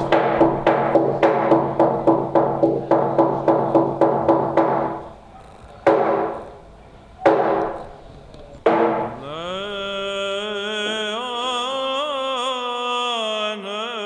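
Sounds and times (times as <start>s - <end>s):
struck percussion strikes: 0.0s - 5.1s, 5.9s - 6.6s, 7.2s - 9.4s
sustained pitched tones: 5.9s - 10.2s.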